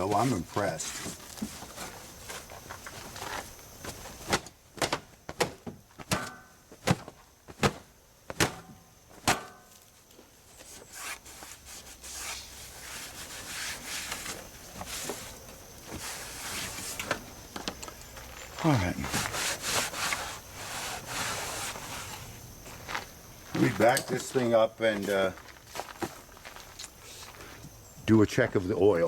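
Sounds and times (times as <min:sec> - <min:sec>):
rubbing and scraping: 0:00.0 - 0:04.4, 0:10.5 - 0:17.3, 0:18.5 - 0:25.2.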